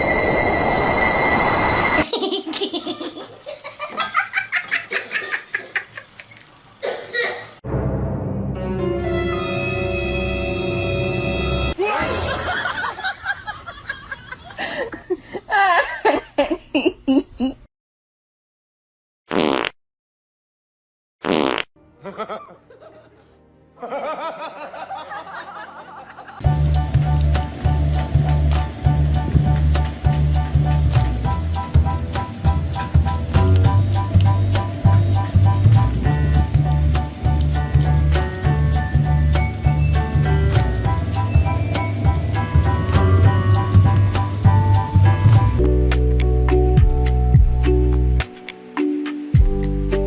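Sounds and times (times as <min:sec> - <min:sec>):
hiss with high held tones: 0:00.0 - 0:02.0
music: 0:07.6 - 0:11.8, 0:21.8 - 0:24.3, 0:26.4 - 0:50.0
person laughing hard: 0:11.9 - 0:17.6, 0:22.0 - 0:26.4.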